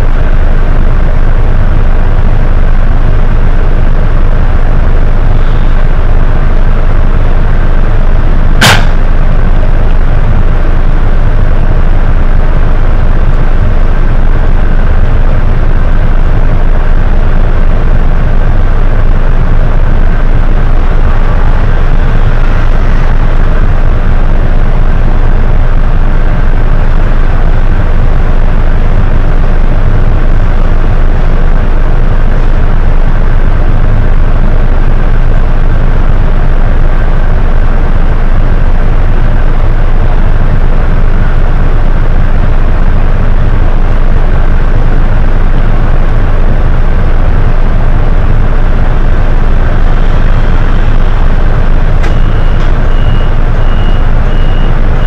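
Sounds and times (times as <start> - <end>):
bus diesel engine rumbling: 0.0 - 55.0
high electronic beeping: 46.6 - 55.0.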